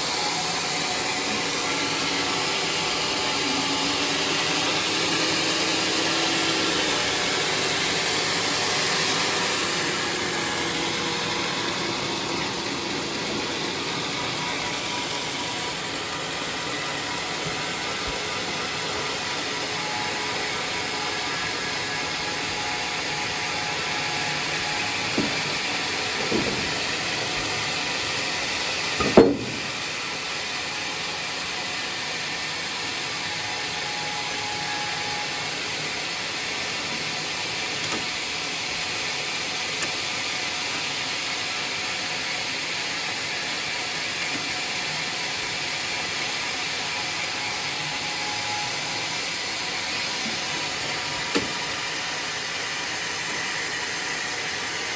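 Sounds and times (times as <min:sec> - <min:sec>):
sawmill saw cutting log: 0:00.0 - 0:54.9
short knocks: 0:29.0 - 0:29.7.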